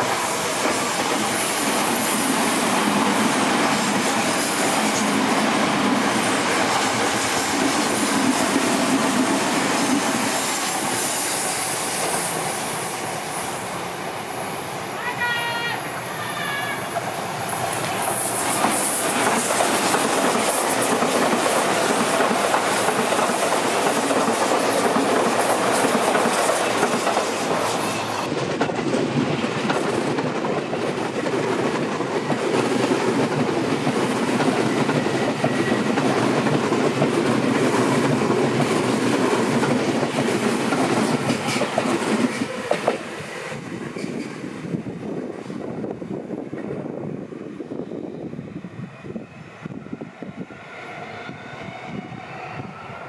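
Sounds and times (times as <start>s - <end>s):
steel wheels rolling on rails: 0.0s - 13.1s, 16.8s - 44.6s
electric train passing: 0.0s - 53.0s.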